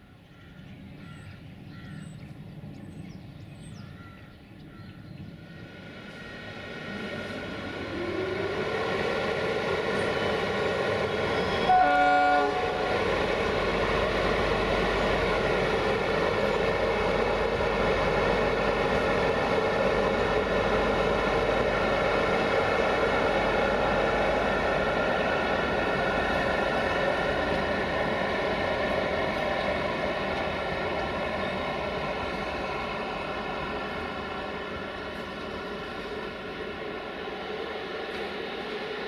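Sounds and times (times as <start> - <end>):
train passing: 0.0 - 39.0
train horn blast: 11.4 - 13.0.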